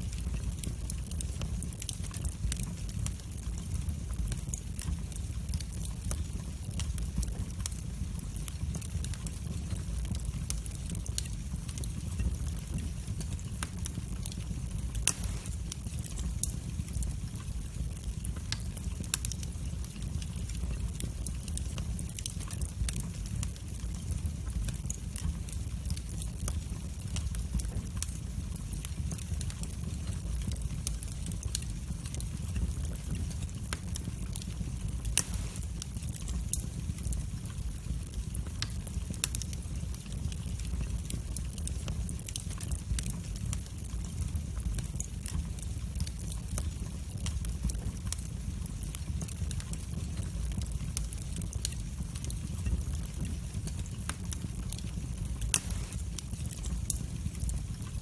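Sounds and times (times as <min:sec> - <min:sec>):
fire crackling and popping: 0:00.0 - 0:58.0
low rumble of flames: 0:00.0 - 0:58.0.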